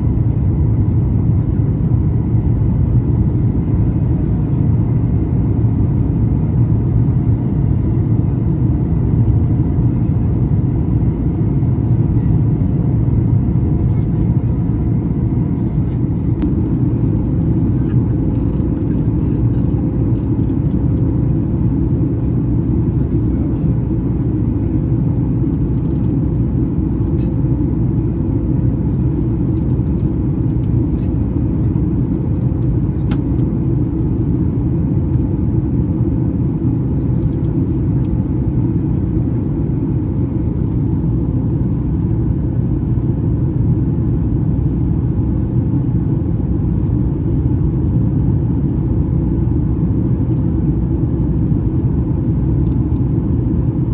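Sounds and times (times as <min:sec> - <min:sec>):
jet engines and airflow rumble: 0:00.0 - 0:53.9
steady hum: 0:00.0 - 0:53.9.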